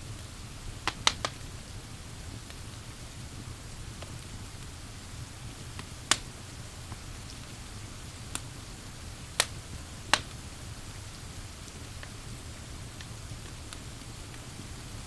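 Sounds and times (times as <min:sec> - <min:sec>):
pouring rain hiss: 0:00.0 - 0:15.0
wood fire crackling: 0:00.0 - 0:15.0
sharp pops of fire: 0:00.2 - 0:01.5, 0:05.6 - 0:10.7.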